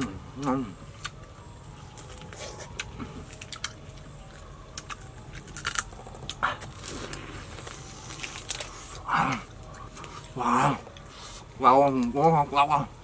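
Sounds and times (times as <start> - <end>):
crunching crispy food: 0.9 - 12.2.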